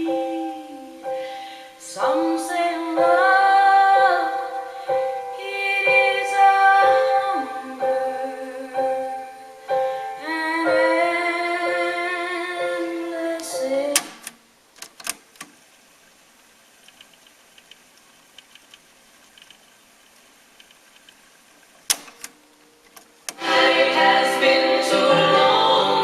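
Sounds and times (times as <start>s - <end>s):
woman singing with piano: 0.0s - 14.2s, 23.4s - 26.0s
faint tape hiss: 0.0s - 26.0s
sharp clicks: 13.9s - 15.6s, 21.8s - 23.4s.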